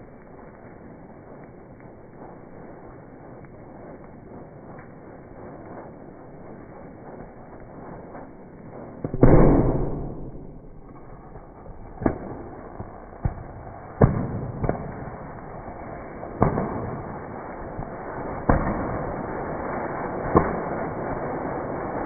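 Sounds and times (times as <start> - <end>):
sharp pops: 7.2 - 15.2, 16.4 - 17.2
loud rocket motor bang: 9.0 - 15.0.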